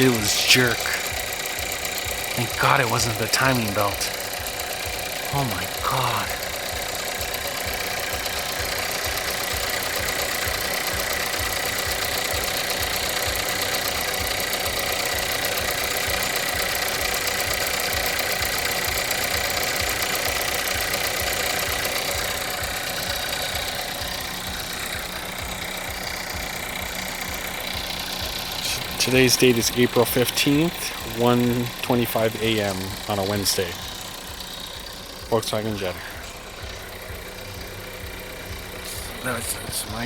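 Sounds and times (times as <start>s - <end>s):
steady high tone: 0.0s - 16.3s, 20.1s - 40.0s
car engine idling unevenly: 0.0s - 40.0s.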